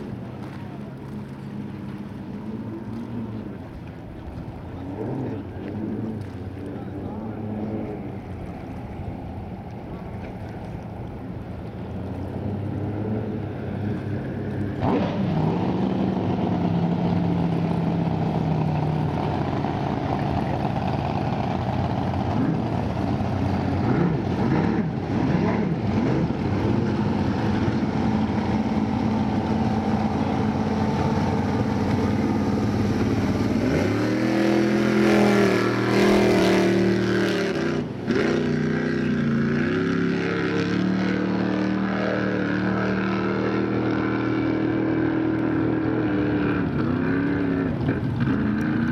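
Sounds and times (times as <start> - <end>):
racing boat engine revving: 0.0 - 48.9.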